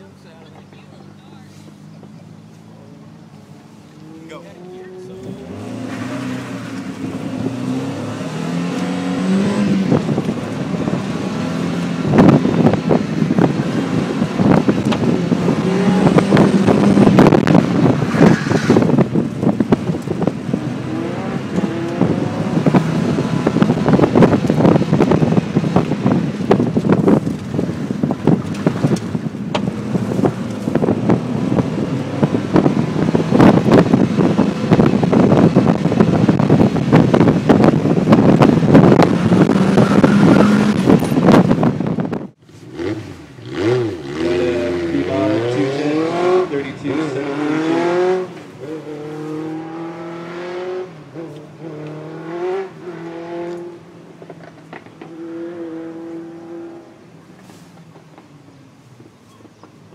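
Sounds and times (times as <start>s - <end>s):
car engine accelerating: 0.0s - 57.2s
wind buffeting microphone: 5.1s - 46.5s.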